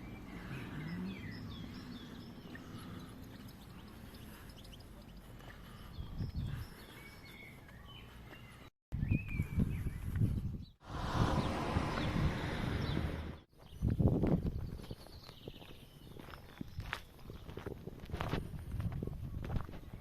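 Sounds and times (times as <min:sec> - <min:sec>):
bird chirps: 0:00.0 - 0:14.0
low rumble: 0:10.8 - 0:13.5.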